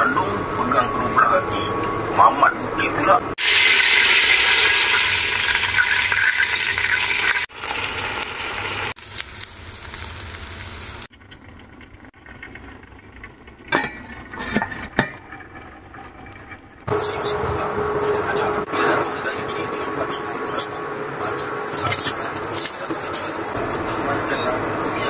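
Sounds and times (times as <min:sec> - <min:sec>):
food sizzling in hot oil: 0:03.4 - 0:11.1.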